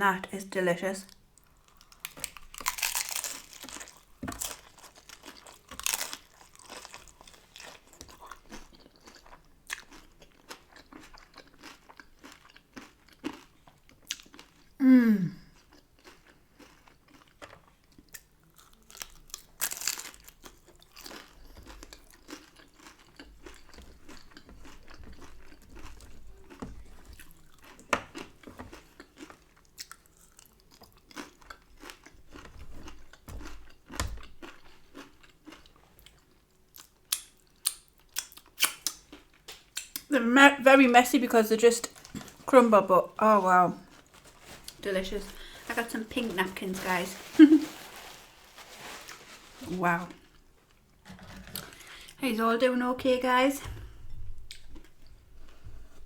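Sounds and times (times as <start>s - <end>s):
crunching on taco shell: 1.4s - 14.8s, 15.4s - 40.1s.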